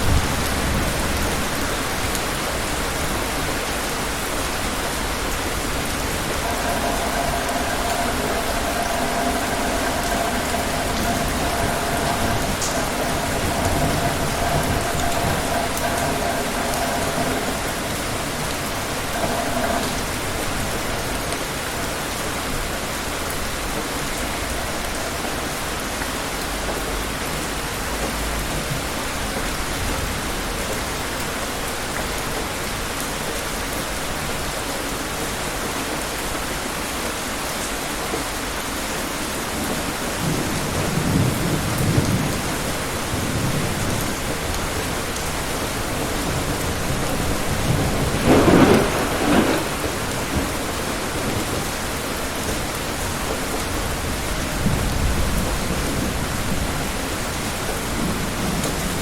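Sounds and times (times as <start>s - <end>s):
distant thunder rumble: 0.0s - 25.8s, 39.9s - 57.0s
heavy rain: 0.0s - 59.0s.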